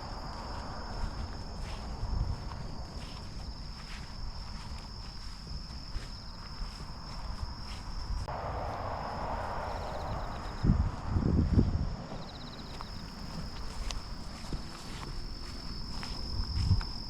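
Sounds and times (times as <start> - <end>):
insects trilling: 0.0 - 10.8, 11.6 - 17.0
low rumble: 8.2 - 12.3.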